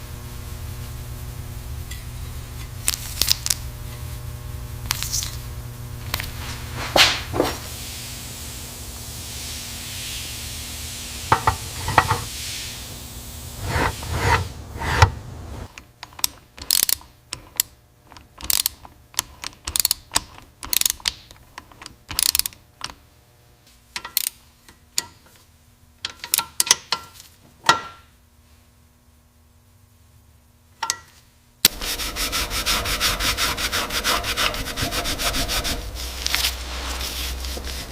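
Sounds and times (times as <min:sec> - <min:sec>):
steady hiss: 0:00.0 - 0:15.7, 0:31.7 - 0:37.9.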